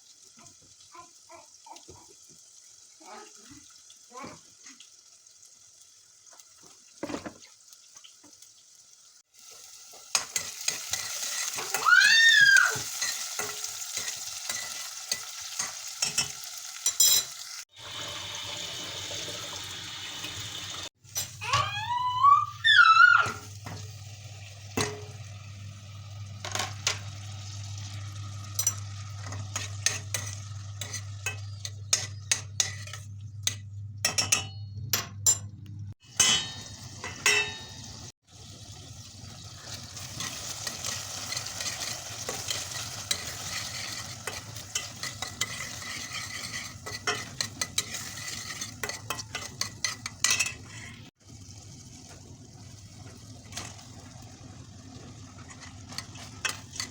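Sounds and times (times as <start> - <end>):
food sizzling: 0.0 - 34.0, 36.0 - 56.9
utensil scraping a pan: 10.2 - 11.8, 28.6 - 33.6, 39.6 - 51.1, 55.3 - 56.9.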